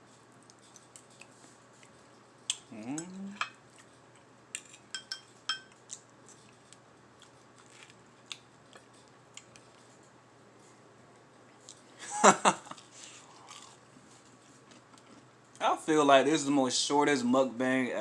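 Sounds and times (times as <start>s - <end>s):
utensil clinking on plate: 4.6s - 5.7s.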